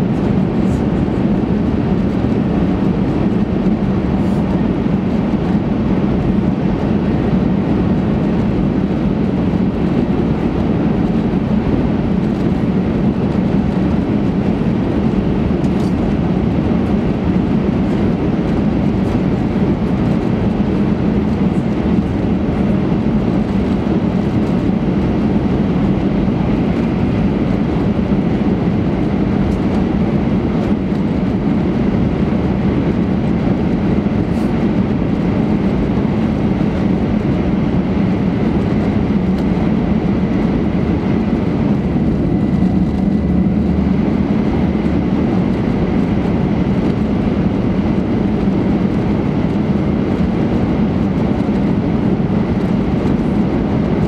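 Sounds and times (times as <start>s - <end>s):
train rumble inside passenger car: 0.0s - 54.0s.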